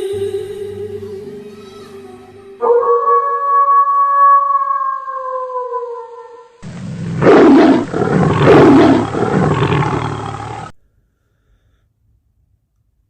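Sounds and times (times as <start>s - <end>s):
loud animal roar: 6.6s - 10.7s.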